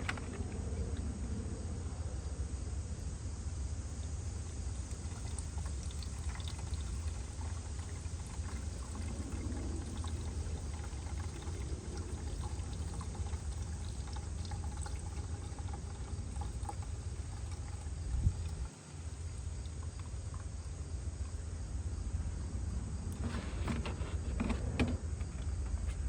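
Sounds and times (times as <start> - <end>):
oil pouring into engine: 0.0 - 1.2, 3.8 - 22.1
low background rumble: 0.0 - 26.0.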